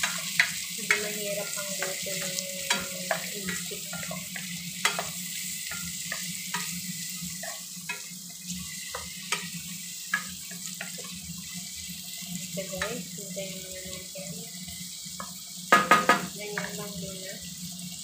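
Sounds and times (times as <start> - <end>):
wooden spatula scraping a pan: 0.0 - 11.3
food sizzling in a pan: 0.0 - 18.0.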